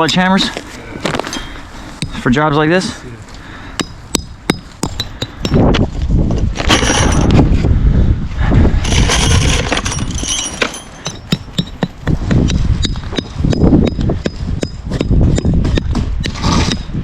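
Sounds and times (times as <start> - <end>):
low rumbling noise: 0.8 - 11.5
hammer striking metal nails: 3.8 - 5.8, 9.8 - 16.0.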